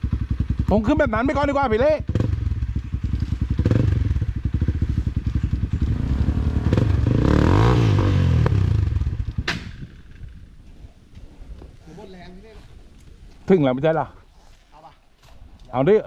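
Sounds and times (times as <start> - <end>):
motorcycle engine labouring: 0.0 - 10.5.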